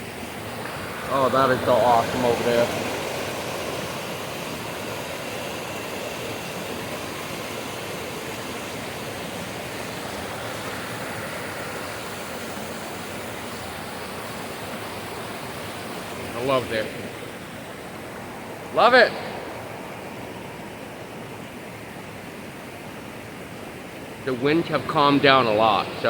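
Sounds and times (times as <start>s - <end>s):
flowing water rushing: 0.0s - 26.0s.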